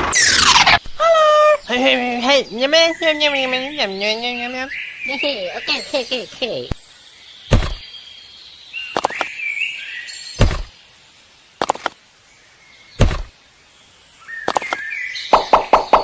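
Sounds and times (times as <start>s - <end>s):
heavy thuds: 7.5s - 7.8s, 10.4s - 10.7s, 13.0s - 13.3s.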